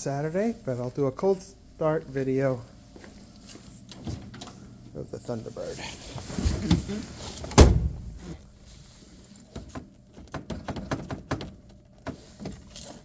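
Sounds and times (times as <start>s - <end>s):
rustling: 5.5s - 9.2s
car door shutting: 6.4s - 8.4s.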